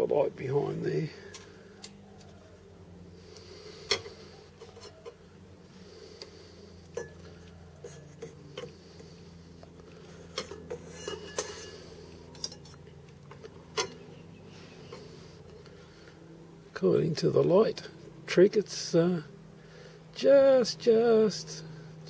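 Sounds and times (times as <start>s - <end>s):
steady low hum: 0.0s - 22.0s
metal tools clinking: 10.3s - 12.8s.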